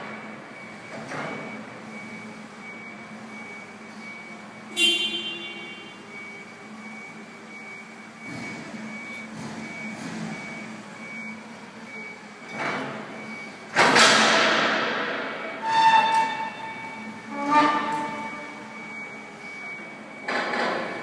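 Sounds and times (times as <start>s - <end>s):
vehicle backup alarm beeping: 0.0s - 21.0s
high ringing squeal: 15.6s - 18.5s.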